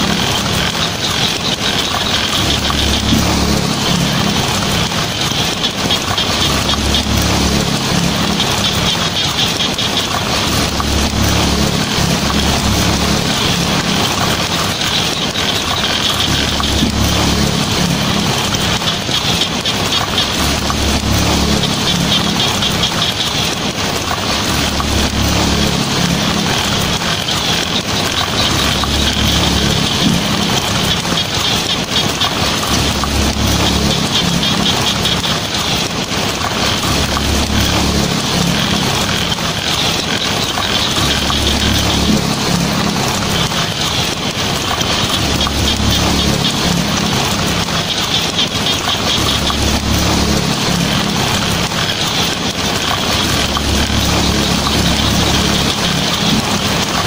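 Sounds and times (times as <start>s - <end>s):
low rumble: 0.0s - 31.5s
heavy rain on a tin roof: 0.0s - 57.0s.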